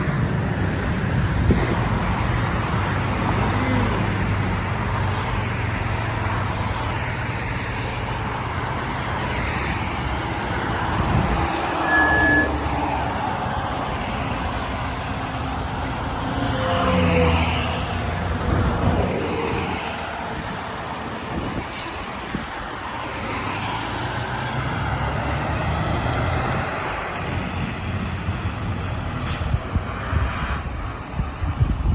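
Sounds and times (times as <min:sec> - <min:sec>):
fire engine rumbling: 0:00.0 - 0:31.9
road traffic noise: 0:00.0 - 0:31.9
brief high tone: 0:11.7 - 0:12.7.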